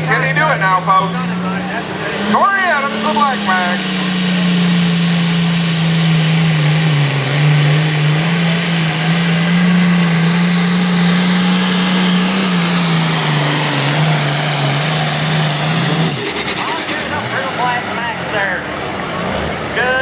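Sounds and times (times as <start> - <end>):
tractor diesel engine revving: 0.0 - 20.0.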